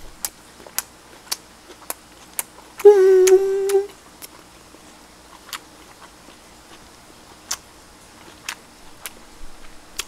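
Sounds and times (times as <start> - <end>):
chewing with mouth clicks: 0.2 - 10.0
person humming mmm: 2.8 - 4.0.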